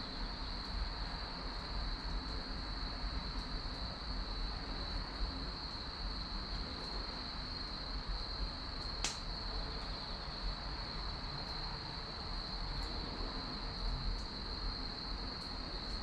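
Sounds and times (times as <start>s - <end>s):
wood fire burning: 8.4s - 12.8s
firewood popping: 9.0s - 9.2s.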